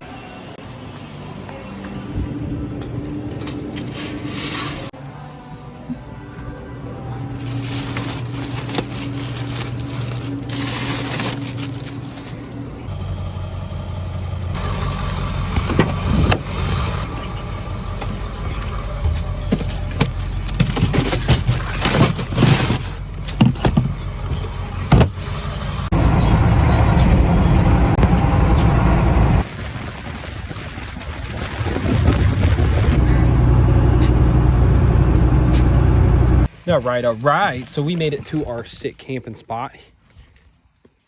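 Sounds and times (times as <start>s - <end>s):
diesel pickup truck engine: 6.6s - 29.5s, 32.2s - 36.6s
knocks and rattles: 19.0s - 25.2s.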